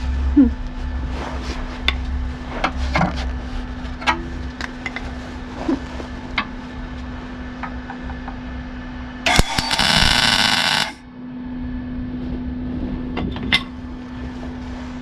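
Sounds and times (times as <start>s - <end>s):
welder humming: 9.2s - 11.1s
crackling weld burst: 9.3s - 11.0s.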